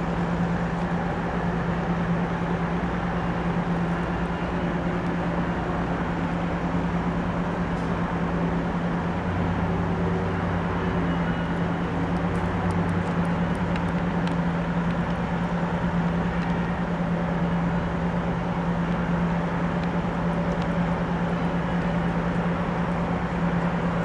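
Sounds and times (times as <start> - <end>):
diesel locomotive humming: 0.0 - 24.0
light ticks: 12.1 - 15.2, 16.0 - 16.8, 19.7 - 20.8.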